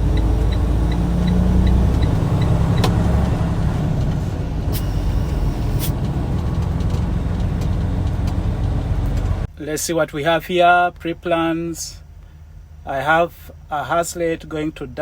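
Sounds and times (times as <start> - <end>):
light regular ticking: 0.0 - 3.4
diesel engine running: 0.0 - 13.7.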